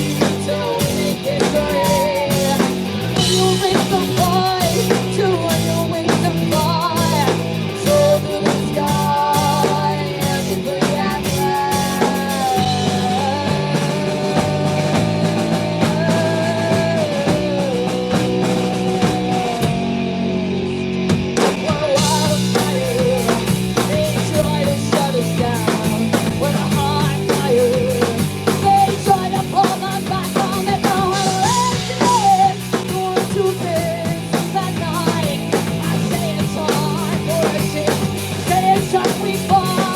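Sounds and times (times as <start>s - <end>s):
drum kit: 0.0s - 39.9s
electric bass: 0.0s - 39.9s
lead guitar melody: 19.6s - 22.6s.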